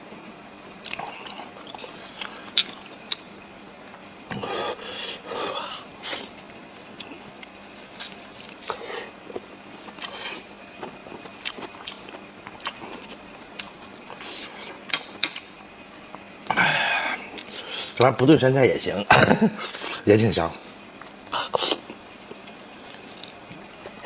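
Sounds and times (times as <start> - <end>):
wet chewing and mouth smacks: 0.8 - 3.3, 6.1 - 15.5.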